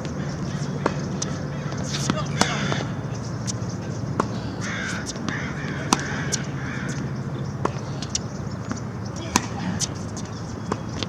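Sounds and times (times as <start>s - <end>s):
crow cawing: 1.5s - 3.0s, 4.4s - 7.0s.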